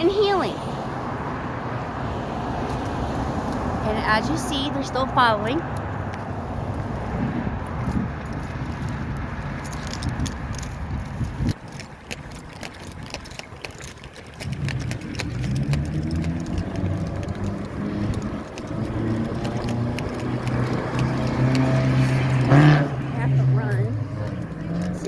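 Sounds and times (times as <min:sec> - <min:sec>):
vehicle engine running: 0:02.5 - 0:25.0
light rattling clicks: 0:08.2 - 0:22.5.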